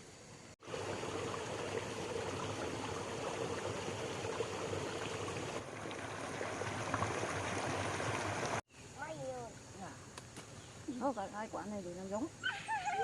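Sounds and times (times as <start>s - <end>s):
running water rushing: 0.6s - 8.6s.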